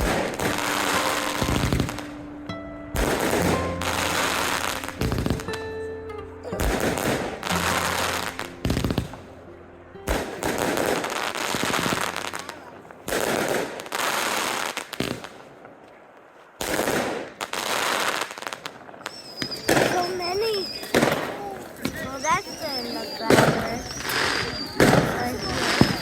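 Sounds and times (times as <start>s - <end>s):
fireworks bangs: 0.0s - 2.3s, 3.0s - 5.7s, 6.4s - 9.3s, 10.1s - 26.0s
fireworks crackling: 0.0s - 5.7s, 6.4s - 9.4s, 10.1s - 26.0s
steady musical tones: 0.0s - 13.0s.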